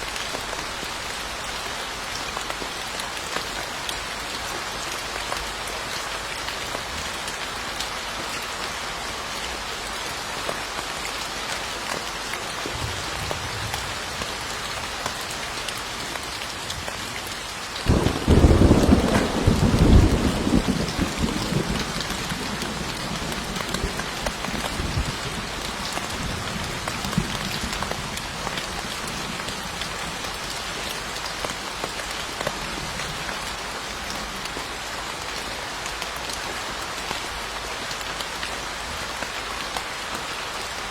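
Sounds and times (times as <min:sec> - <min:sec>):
steady rain: 0:00.0 - 0:40.9
thunder clap and rumble: 0:17.9 - 0:28.2.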